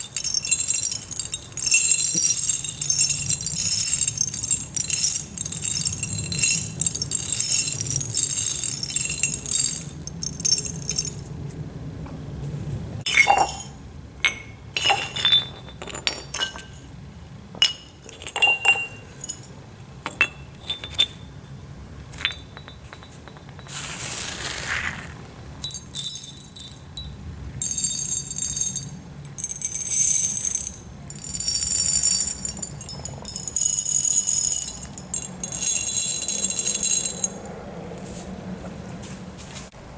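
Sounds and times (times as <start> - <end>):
aquarium gravel rattling: 0.0 - 11.2, 23.7 - 25.9, 30.2 - 37.4.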